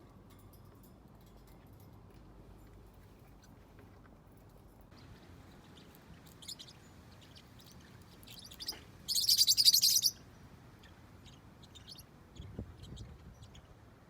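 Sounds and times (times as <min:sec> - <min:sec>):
parrotlet chattering call: 0:05.8 - 0:10.2.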